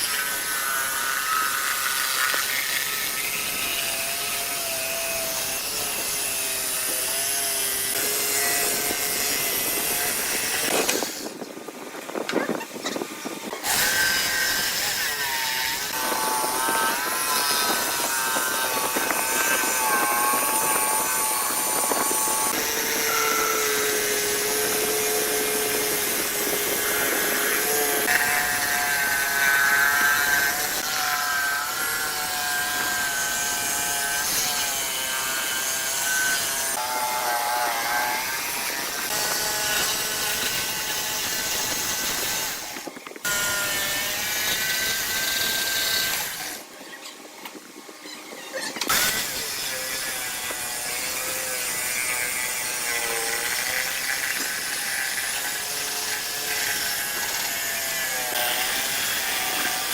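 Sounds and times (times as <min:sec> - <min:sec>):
power tool motor whining: 0:00.0 - 0:11.8, 0:12.5 - 0:46.7, 0:48.8 - 0:59.9
tool rasping wood: 0:13.0 - 0:46.7, 0:48.9 - 0:59.9.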